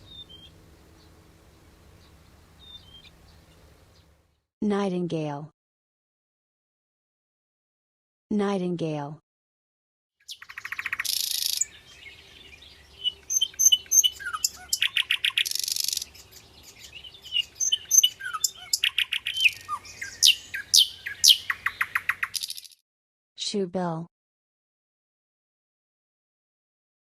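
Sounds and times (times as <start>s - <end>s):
nightingale singing: 0.0s - 4.1s, 10.2s - 22.8s.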